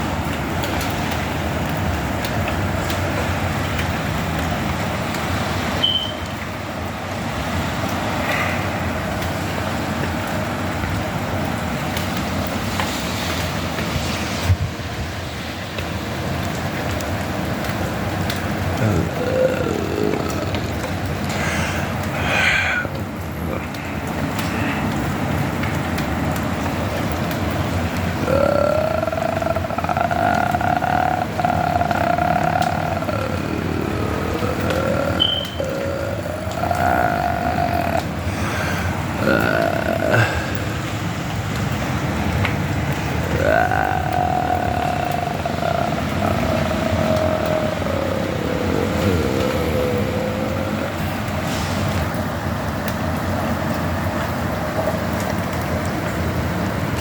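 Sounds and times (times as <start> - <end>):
steady rain: 0.0 - 57.0
vehicle whine: 15.8 - 57.0
rumbling noise: 18.6 - 24.8, 28.1 - 52.3.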